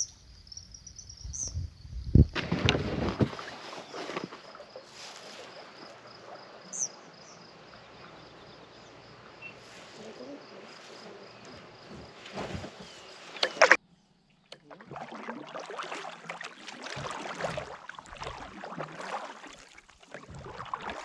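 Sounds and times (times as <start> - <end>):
crickets chirping: 0.0 - 2.4, 3.8 - 14.4
paddle strokes splashing: 2.2 - 13.8, 14.6 - 21.0.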